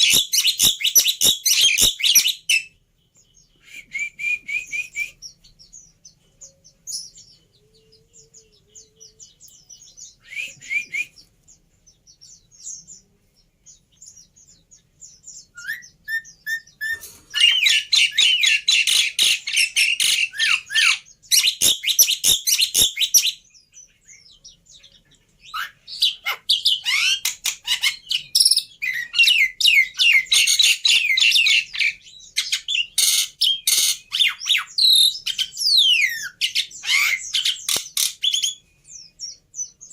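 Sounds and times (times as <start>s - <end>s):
starling chattering and whistling: 0.0s - 2.8s, 25.5s - 39.3s.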